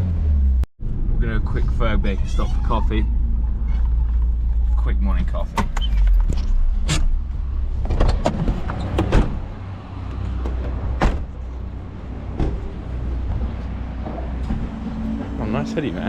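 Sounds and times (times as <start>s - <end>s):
sharp knocks and clicks: 10.0s - 11.3s.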